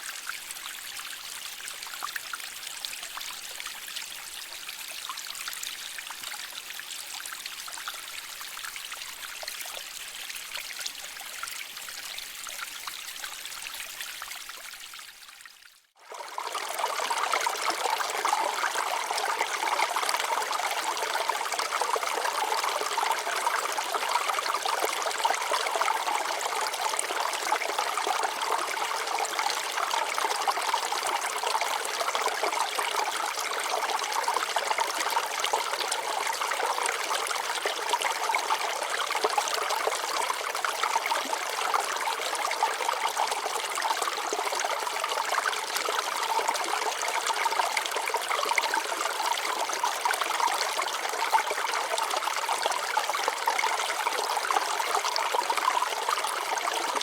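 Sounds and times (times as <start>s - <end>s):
water flowing over rocks: 0.0s - 57.0s.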